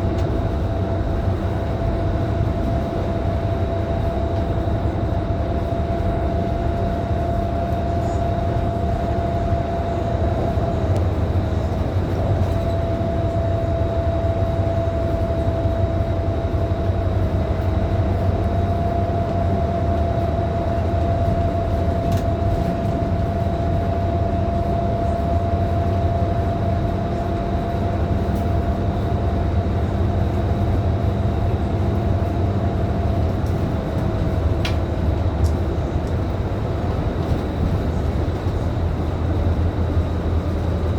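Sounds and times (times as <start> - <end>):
bus engine and road rumble: 0.0 - 40.9
constant whine: 0.0 - 40.9.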